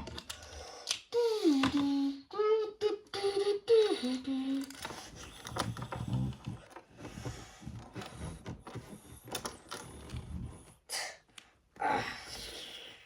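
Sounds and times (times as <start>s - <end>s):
boy humming vocal effects: 1.1s - 4.8s.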